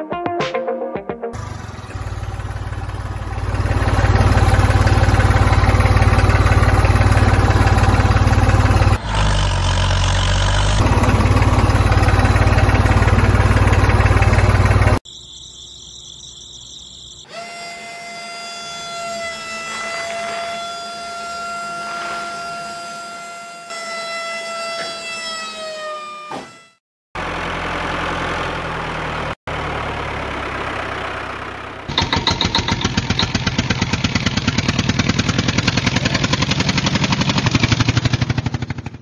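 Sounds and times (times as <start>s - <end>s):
tractor engine putter: 1.7s - 9.0s, 31.9s - 38.8s.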